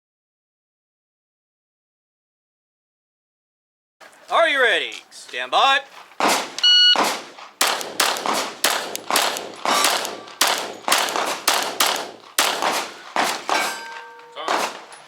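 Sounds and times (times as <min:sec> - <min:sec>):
pistol shots cracking: 0:06.2 - 0:15.0
shot timer beep: 0:06.6 - 0:07.0.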